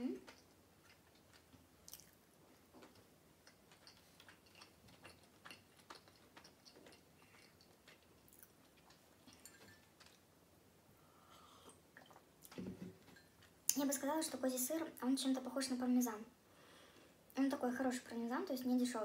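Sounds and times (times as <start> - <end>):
faint chewing mouth clicks: 0.1 - 10.3, 11.2 - 12.6.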